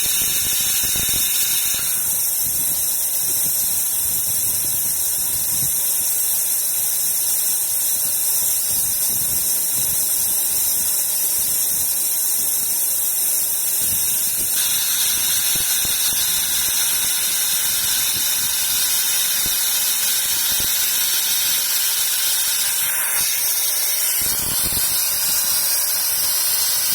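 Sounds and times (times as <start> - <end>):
laser drilling machine hissing: 0.0 - 3.0, 12.0 - 26.9.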